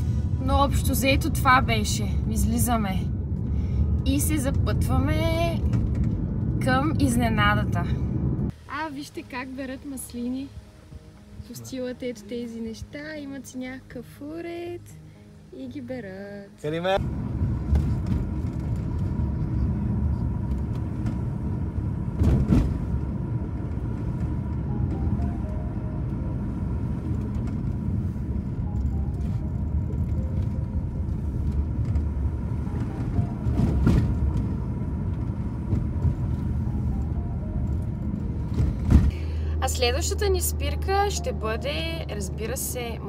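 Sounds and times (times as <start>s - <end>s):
car road and engine rumble: 0.0s - 43.0s
car knocking over bumps: 20.5s - 25.2s, 29.7s - 36.7s, 37.6s - 39.2s.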